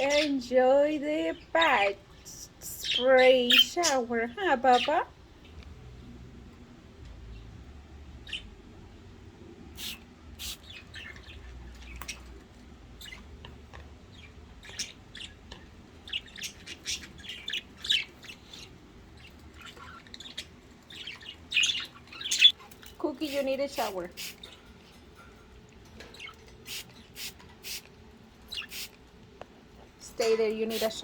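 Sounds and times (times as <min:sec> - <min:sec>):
budgerigars chirping: 0:00.0 - 0:00.4, 0:02.8 - 0:05.1, 0:08.2 - 0:08.6, 0:14.1 - 0:22.6, 0:28.4 - 0:28.9, 0:30.2 - 0:31.0.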